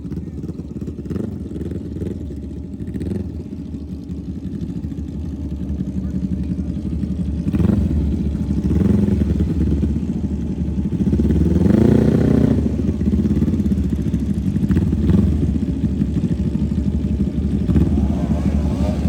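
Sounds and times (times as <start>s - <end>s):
mini bike engine revving: 7.4s - 9.8s, 11.1s - 15.8s, 17.1s - 19.0s.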